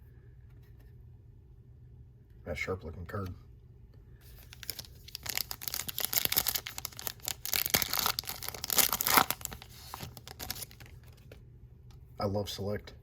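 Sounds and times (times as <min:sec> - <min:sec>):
foil wrapper crinkling: 0:04.3 - 0:11.2.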